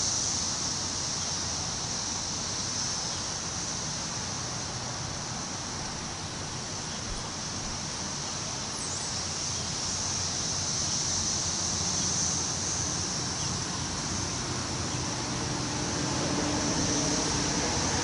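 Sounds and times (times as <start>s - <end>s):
low mechanical hum: 0.0s - 18.0s
wind rustling tree leaves: 0.0s - 18.0s.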